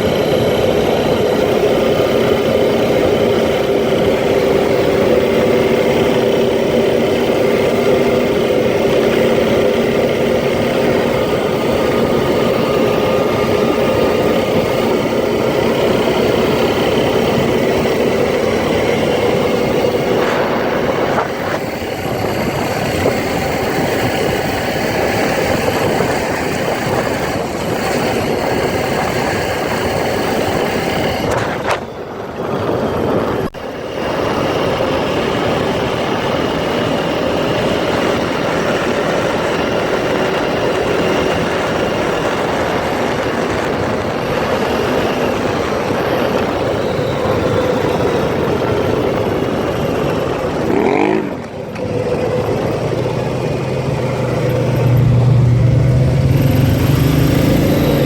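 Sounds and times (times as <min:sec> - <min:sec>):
quad engine running: 0:00.0 - 0:58.0.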